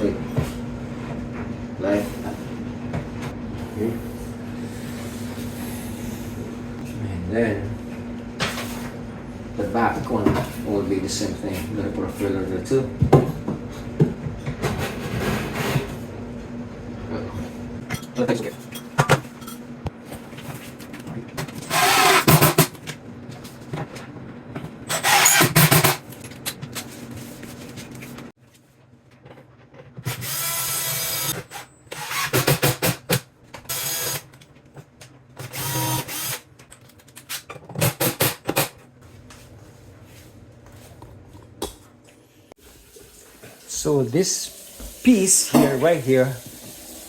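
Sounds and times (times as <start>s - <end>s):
power drill driving screws: 21.7s - 22.6s, 24.9s - 26.0s, 30.1s - 32.9s, 33.7s - 34.2s, 35.4s - 36.4s.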